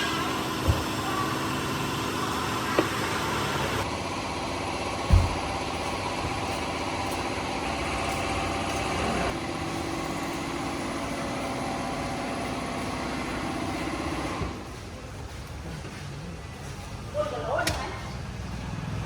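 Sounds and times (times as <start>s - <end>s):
motor-driven machine humming: 0.0s - 9.4s.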